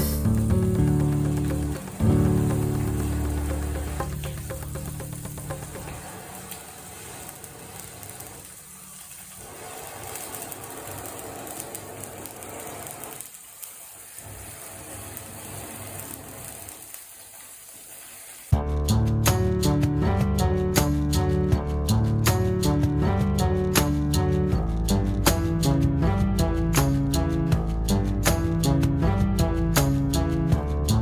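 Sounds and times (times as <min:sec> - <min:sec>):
fish sizzling on a grill: 0:00.0 - 0:19.9
wood fire crackling: 0:00.0 - 0:31.0.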